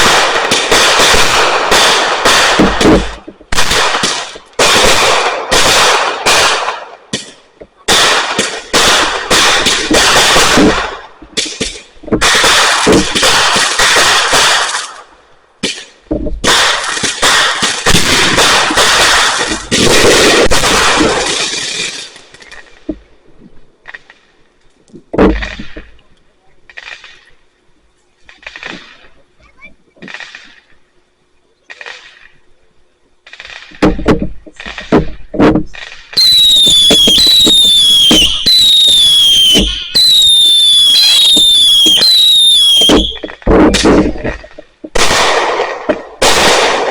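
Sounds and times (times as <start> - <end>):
fireworks banging and crackling: 0.0 - 46.9
faint firework pops: 33.2 - 46.9
firework whistle gliding down: 36.2 - 43.2.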